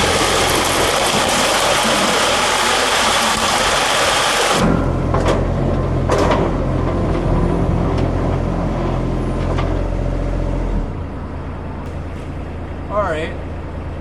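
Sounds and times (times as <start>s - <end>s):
plow scraping pavement: 0.0s - 11.0s
loader engine running: 0.0s - 14.0s.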